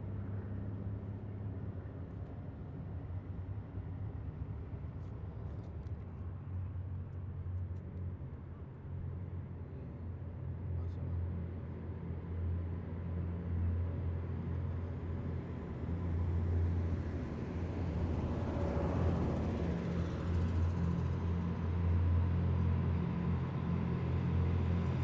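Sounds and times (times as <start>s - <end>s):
heavy vehicle engines droning: 8.4s - 25.0s.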